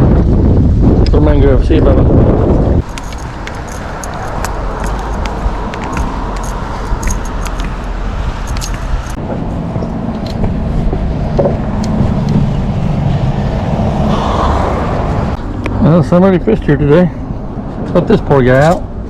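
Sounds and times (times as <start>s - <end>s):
road noise: 0.0s - 19.0s
wind buffeting microphone: 0.0s - 19.0s
scattered clicks: 2.8s - 9.2s
car engine humming: 2.8s - 18.0s.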